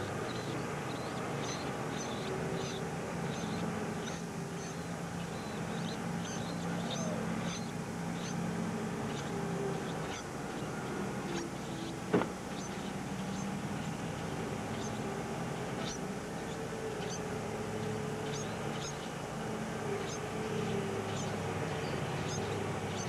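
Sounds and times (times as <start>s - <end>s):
nestling birds cheeping: 0.0s - 23.0s
steady low hum: 0.0s - 23.0s.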